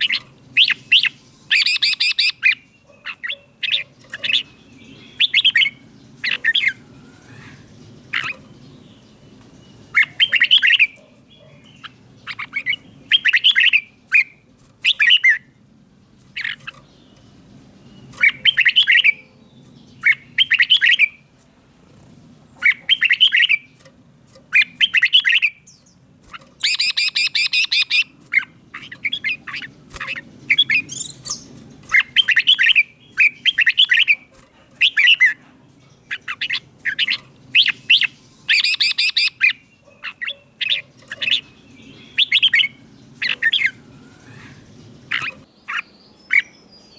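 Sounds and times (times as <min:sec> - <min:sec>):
bird singing whistled phrases: 0:00.0 - 0:02.6, 0:26.6 - 0:28.1, 0:36.4 - 0:39.6
bird chattering: 0:00.0 - 0:15.5, 0:16.2 - 0:23.8, 0:24.4 - 0:46.7.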